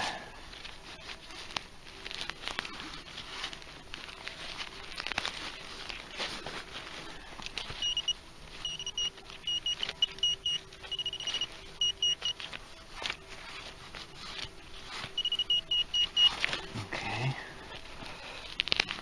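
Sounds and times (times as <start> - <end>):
metal detector beeping: 7.6 - 12.5, 15.1 - 16.5.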